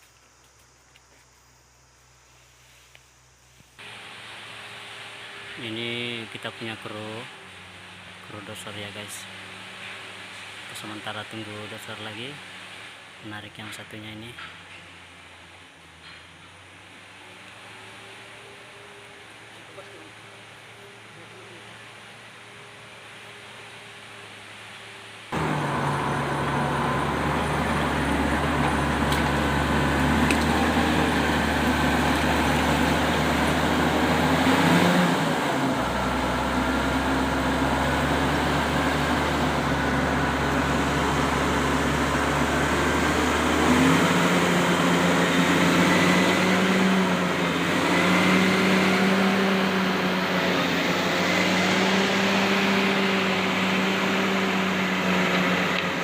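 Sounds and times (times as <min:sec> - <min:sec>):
bulldozer diesel engine under load: 0:25.3 - 0:56.0.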